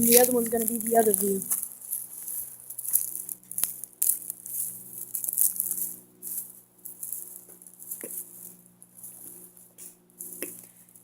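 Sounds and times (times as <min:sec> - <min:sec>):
shaky rustling bursts: 0:00.0 - 0:03.2
steady low hum: 0:00.0 - 0:11.0.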